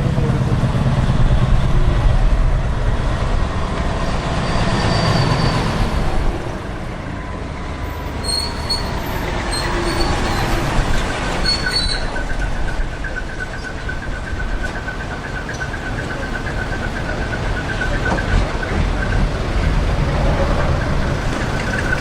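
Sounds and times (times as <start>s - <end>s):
heavy vehicle low rumble: 0.0s - 22.0s
high-pitched squeals: 3.9s - 6.4s, 8.0s - 22.0s.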